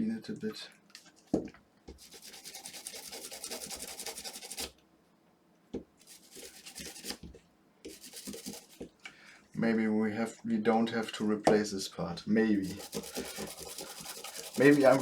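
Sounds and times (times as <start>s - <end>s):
toothbrush scrubbing circuit board: 2.0s - 4.7s, 7.9s - 8.8s, 12.6s - 15.0s.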